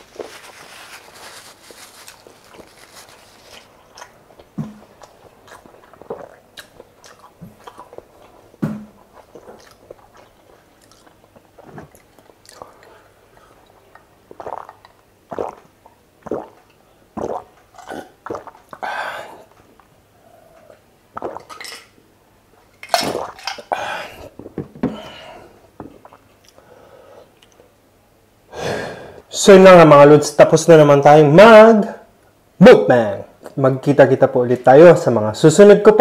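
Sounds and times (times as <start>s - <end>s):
person chewing food: 0.0s - 18.8s
wet mouth clicks: 3.9s - 8.0s, 9.1s - 18.8s, 20.5s - 21.7s.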